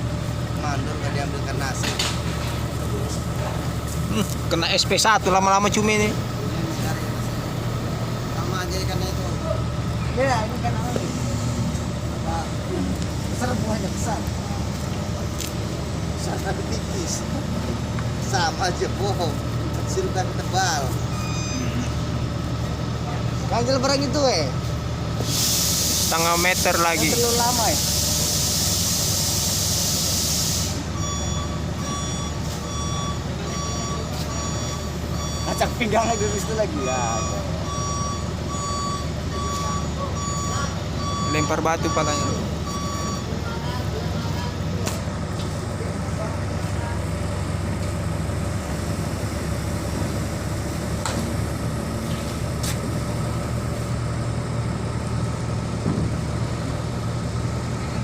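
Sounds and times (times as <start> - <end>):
heavy diesel machine running: 0.0 - 58.0
backup alarm beeping: 20.7 - 22.0, 30.8 - 43.6
loud hiss: 25.2 - 30.9.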